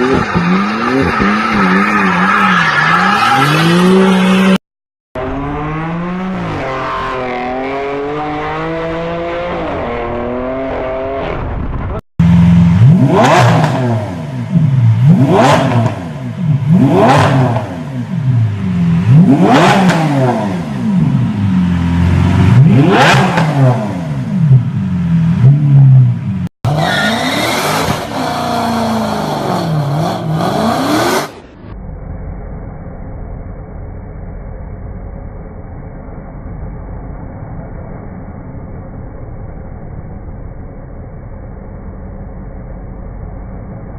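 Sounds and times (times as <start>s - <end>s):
car engine revving: 5.2s - 31.5s.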